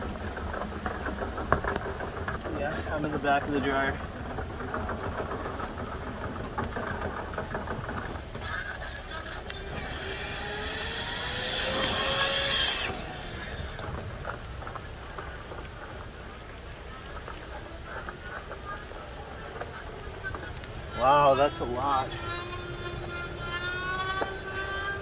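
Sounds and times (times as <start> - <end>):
duct cleaning machine motor: 8.4 - 14.0, 20.6 - 25.0.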